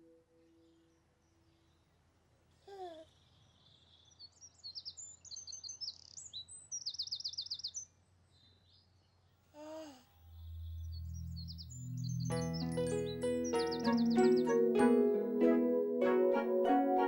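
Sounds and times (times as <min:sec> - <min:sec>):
bird chirping and trilling: 0:03.6 - 0:08.6, 0:10.4 - 0:17.0.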